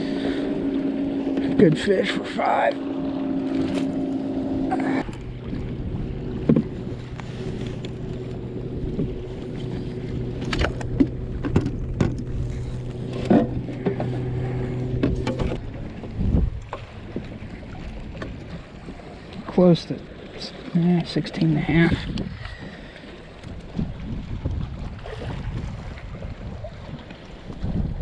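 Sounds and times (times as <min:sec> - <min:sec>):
boat motor hum: 0:00.0 - 0:28.0
knocks and clicks of handling: 0:10.4 - 0:12.3.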